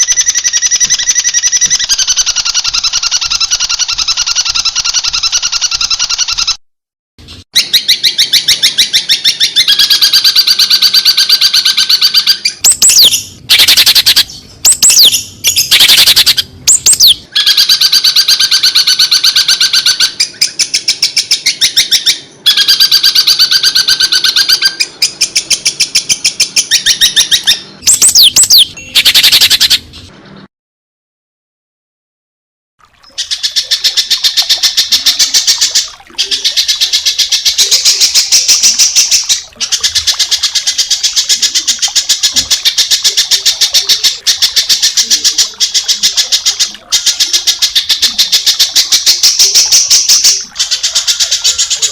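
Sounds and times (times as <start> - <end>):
songbird singing fast trills: 7.6 - 29.8.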